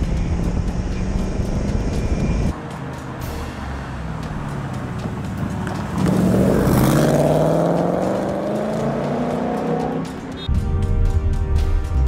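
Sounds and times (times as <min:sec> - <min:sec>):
car engine accelerating past: 0:02.8 - 0:10.2.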